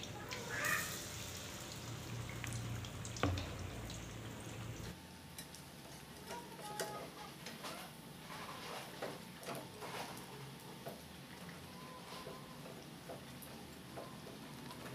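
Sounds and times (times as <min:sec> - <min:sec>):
omelette sizzling in oil: 0:00.0 - 0:06.2.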